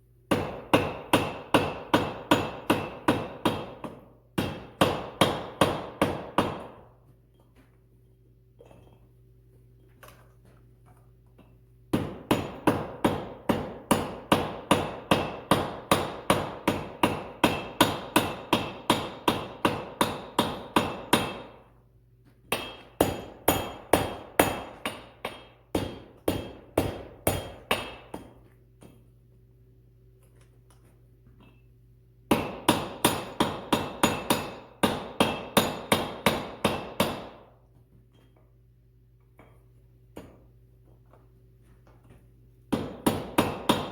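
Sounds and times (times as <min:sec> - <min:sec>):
hammer striking hot metal on anvil: 0:00.3 - 0:06.8, 0:11.9 - 0:21.7, 0:22.5 - 0:29.0, 0:32.3 - 0:37.4, 0:42.7 - 0:43.9.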